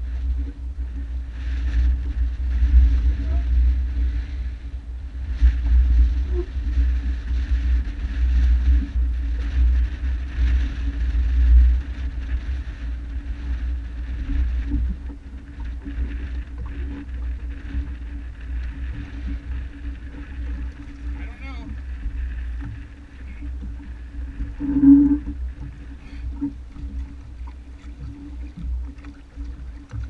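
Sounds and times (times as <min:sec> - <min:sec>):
wind buffeting microphone: 0:00.0 - 0:30.0
jet ski engine running: 0:08.6 - 0:30.0.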